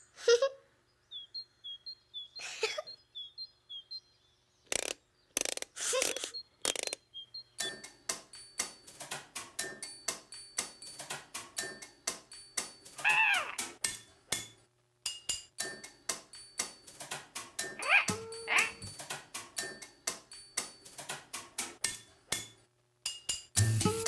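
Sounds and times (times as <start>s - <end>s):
rapid clicks and knocks: 7.6s - 14.6s, 15.3s - 22.6s.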